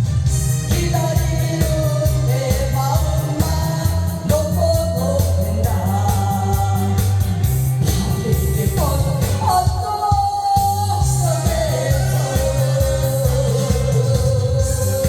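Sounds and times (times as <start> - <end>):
loud bass beat: 0.0 - 15.0
person singing: 0.6 - 15.0.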